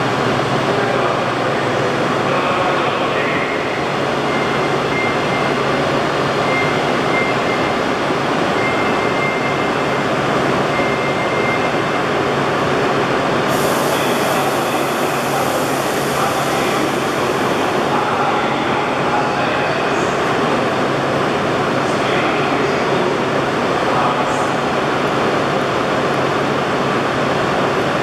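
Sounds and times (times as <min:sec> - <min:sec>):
train equipment hum and whir: 0:00.0 - 0:28.0.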